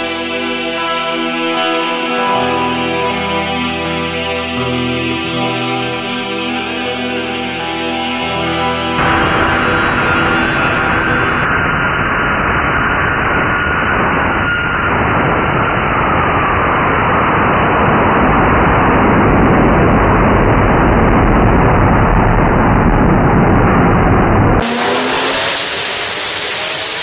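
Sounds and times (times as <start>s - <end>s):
engine running hard under load: 9.0s - 11.7s, 24.5s - 27.0s.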